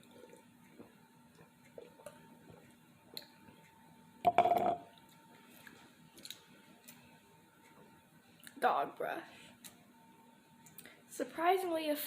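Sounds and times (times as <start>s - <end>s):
eating and drinking noises: 0.0s - 3.6s
furnace humming: 0.0s - 11.6s.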